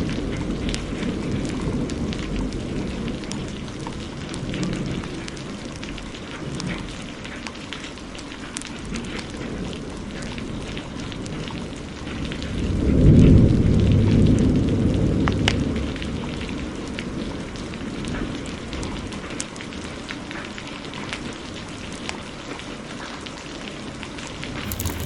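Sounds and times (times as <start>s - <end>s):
heavy rain: 0.0s - 25.0s
wood fire crackling: 24.6s - 25.0s.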